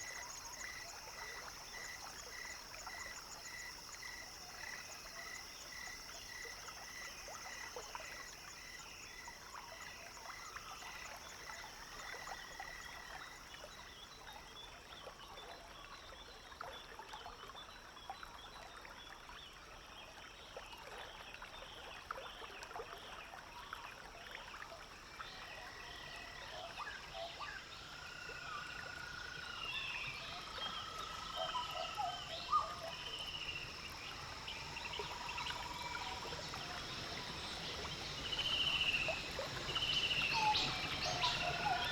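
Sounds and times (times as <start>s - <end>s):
frogs and insects chorus: 0.0s - 41.9s
water trickling: 30.2s - 41.9s.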